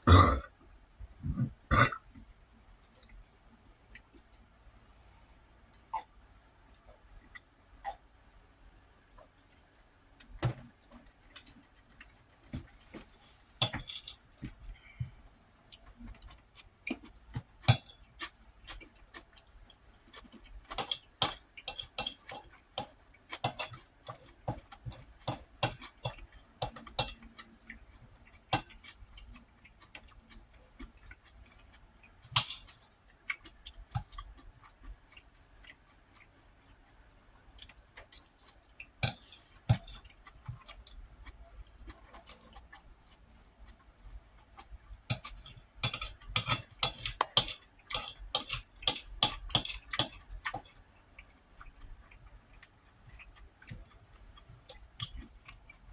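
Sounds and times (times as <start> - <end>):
chewing: 13.8 - 55.9
utensil clinking against dish: 45.1 - 50.8.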